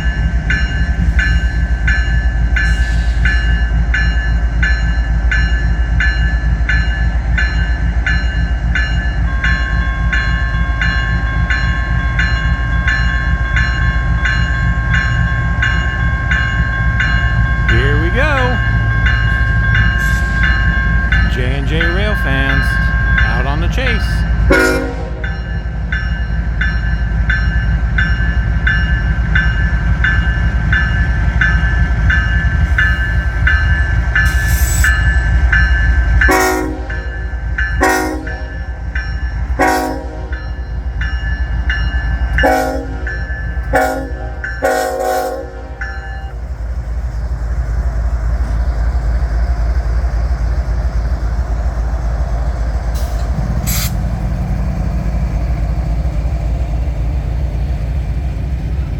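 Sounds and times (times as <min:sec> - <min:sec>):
diesel locomotives rumbling: 0:00.0 - 0:58.9
locomotive horn toots: 0:21.2 - 0:25.4, 0:36.3 - 0:37.1, 0:37.8 - 0:38.6, 0:39.6 - 0:40.4, 0:42.4 - 0:43.1, 0:43.7 - 0:45.8.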